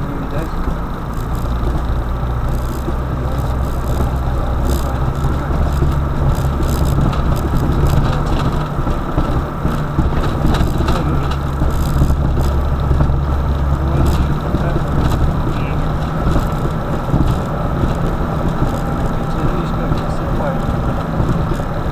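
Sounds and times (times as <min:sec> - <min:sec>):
car engine drone: 0:00.0 - 0:21.9
faint clicks: 0:00.0 - 0:21.9
road and tyre noise: 0:00.0 - 0:21.9.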